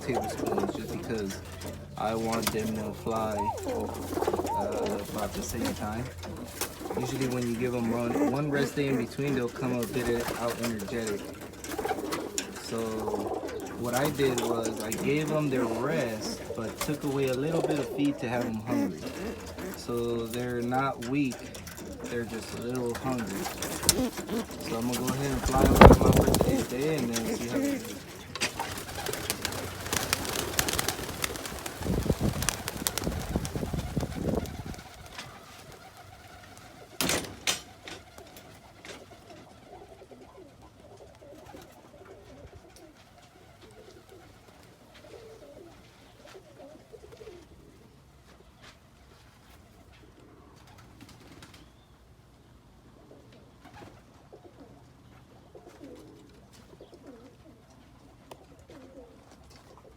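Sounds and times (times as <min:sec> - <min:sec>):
pigeon wings flapping: 0:00.0 - 0:40.6, 0:50.6 - 0:51.6
pigeon cooing: 0:00.0 - 0:48.1, 0:52.8 - 0:59.9.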